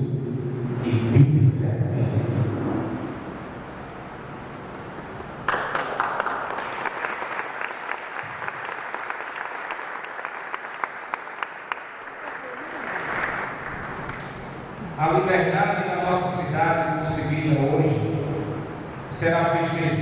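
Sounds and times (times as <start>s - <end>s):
audience applauding: 5.2s - 14.8s.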